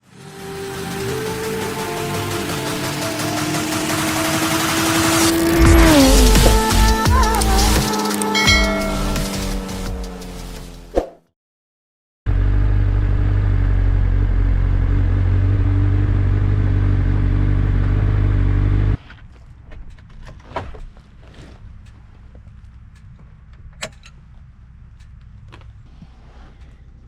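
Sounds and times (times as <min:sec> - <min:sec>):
motorcycle engine running: 0:00.7 - 0:10.5, 0:12.3 - 0:19.0.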